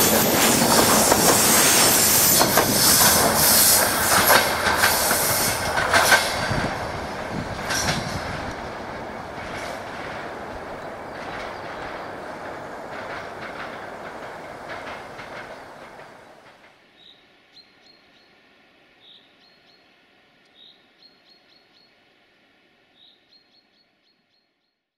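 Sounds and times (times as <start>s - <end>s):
train wheels clicking on rail joints: 0.0s - 17.1s
bird chirping: 19.0s - 19.9s, 20.5s - 22.0s, 23.0s - 24.9s.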